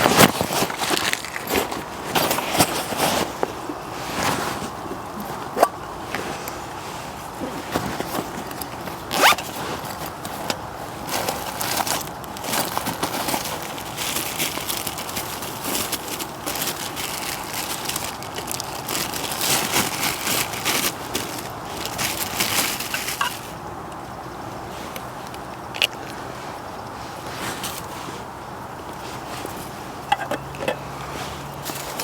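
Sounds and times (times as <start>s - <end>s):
fabric and gear rustling: 0.0s - 23.6s, 26.4s - 32.0s
zip being pulled: 9.1s - 9.4s.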